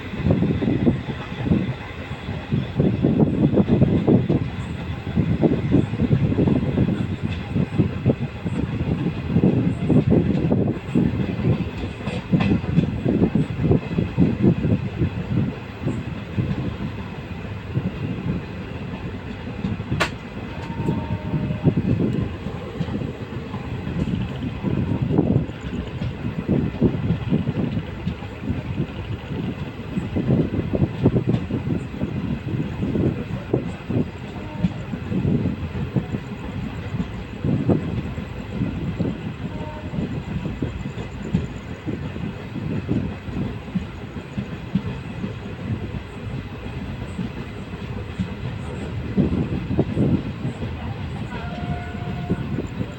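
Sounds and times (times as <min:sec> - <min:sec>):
train wheels rumbling on rails: 0:00.0 - 0:52.9
sharp click: 0:20.0 - 0:20.2.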